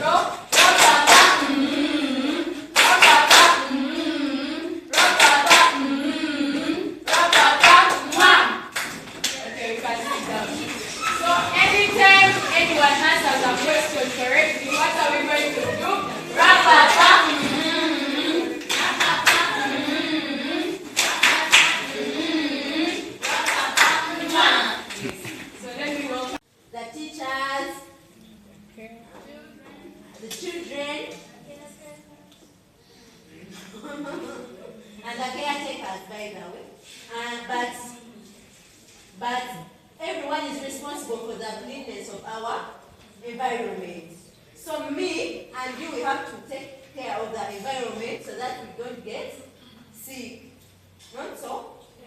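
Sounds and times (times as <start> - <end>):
group singing: 0.0 - 26.4
hand claps: 0.5 - 1.4, 2.8 - 3.6, 21.0 - 21.8.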